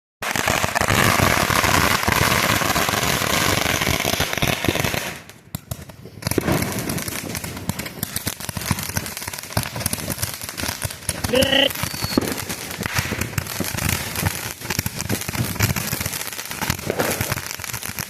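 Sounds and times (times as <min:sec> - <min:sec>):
firework crackling pops: 0:00.2 - 0:18.0.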